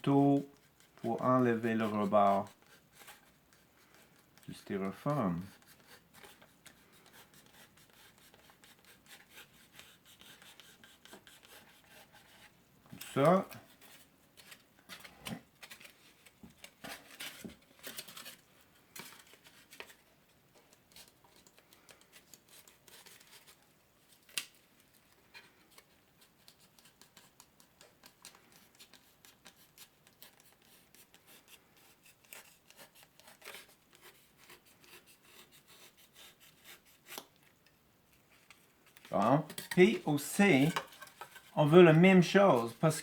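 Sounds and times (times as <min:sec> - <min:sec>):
knife scratching styrofoam: 0:00.4 - 0:14.1, 0:25.8 - 0:37.3, 0:39.1 - 0:43.0.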